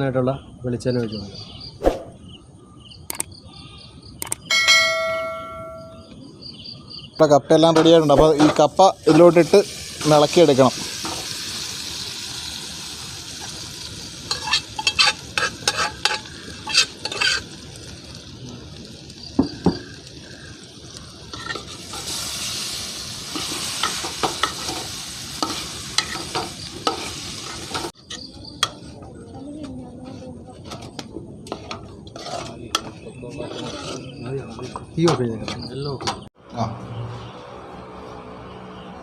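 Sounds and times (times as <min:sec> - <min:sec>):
oil sizzling in a pan: 0:08.3 - 0:28.0
spoon scraping against pan: 0:14.3 - 0:17.6, 0:21.3 - 0:22.2, 0:23.3 - 0:28.9, 0:31.5 - 0:34.8.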